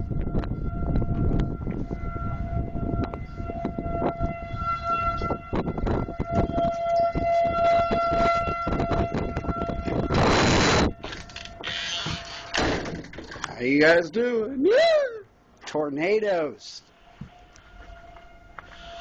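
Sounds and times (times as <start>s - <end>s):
warning siren sweeping tone: 0.0s - 12.5s, 16.8s - 19.0s
wind rumble on microphone: 0.0s - 13.6s.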